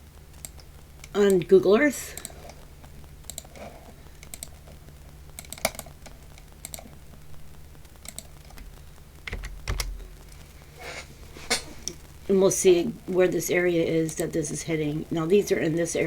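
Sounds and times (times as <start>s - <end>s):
steady low hum: 0.0s - 16.0s
keyboard keys clicking: 8.0s - 10.0s.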